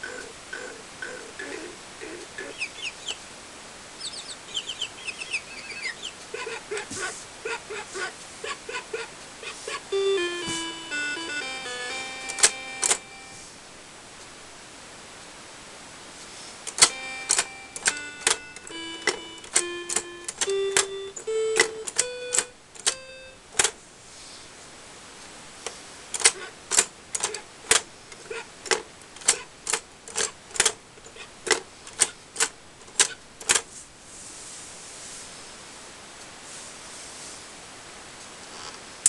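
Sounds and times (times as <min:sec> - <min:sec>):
toy piano notes: 0:09.9 - 0:13.4, 0:16.7 - 0:23.4.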